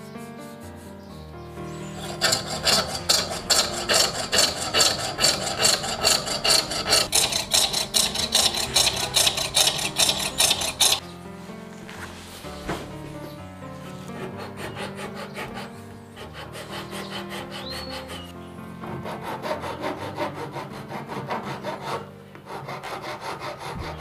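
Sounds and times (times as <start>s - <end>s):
file scraping wood: 0.0s - 11.0s, 12.5s - 24.0s
soft background music: 0.0s - 24.0s.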